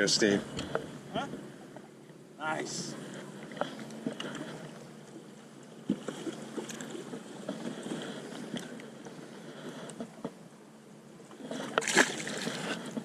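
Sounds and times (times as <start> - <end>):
water lapping around boat: 0.0 - 13.0
small clicks and knocks in boat: 3.1 - 10.5, 11.2 - 13.0.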